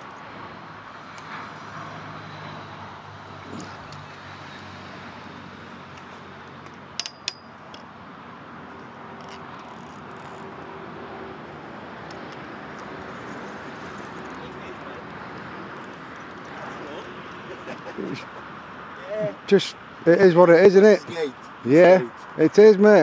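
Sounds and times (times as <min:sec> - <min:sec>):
outdoor background hum: 0:00.0 - 0:23.0
sharp metallic clicks: 0:05.9 - 0:07.9.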